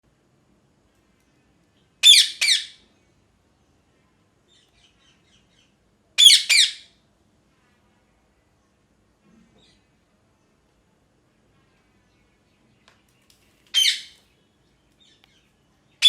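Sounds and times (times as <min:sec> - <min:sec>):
parakeet squawking: 0:02.0 - 0:02.8, 0:06.2 - 0:06.9, 0:13.7 - 0:14.2.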